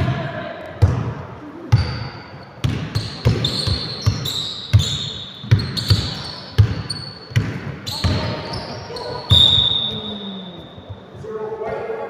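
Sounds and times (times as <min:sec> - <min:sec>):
basketball bouncing on gym floor: 0:00.8 - 0:10.2
high squeaks: 0:01.8 - 0:11.0.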